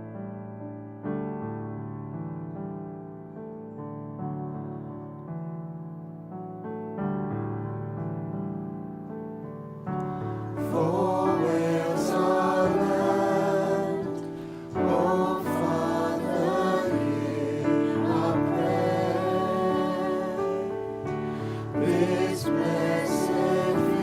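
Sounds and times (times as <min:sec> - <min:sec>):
voices singing worship song: 0:10.1 - 0:24.0.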